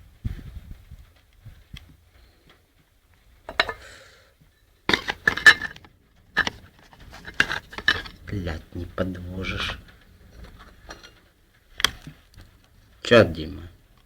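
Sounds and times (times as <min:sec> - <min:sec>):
dense clattering: 0:03.5 - 0:03.9, 0:04.8 - 0:12.6
hard objects knocking and clinking: 0:03.5 - 0:03.9, 0:04.9 - 0:11.2.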